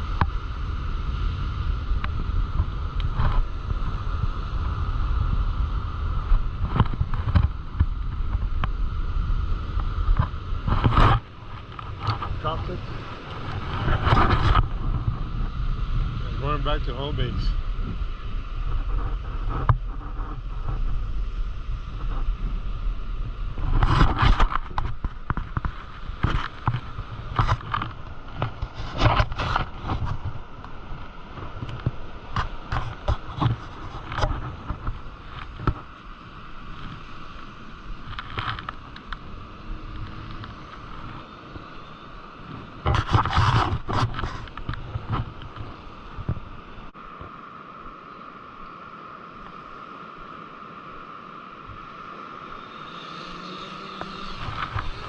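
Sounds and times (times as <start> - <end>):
drone propellers humming: 0.0 - 55.0
wind rumbling on microphone: 0.0 - 55.0
handling knocks and scrapes: 42.8 - 46.4.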